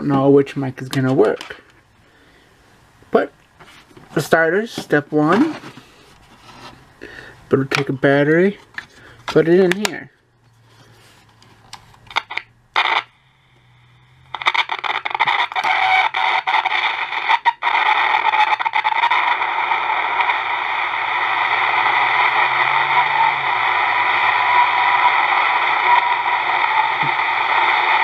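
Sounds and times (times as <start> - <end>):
crackling static hiss: 0.0 - 28.0.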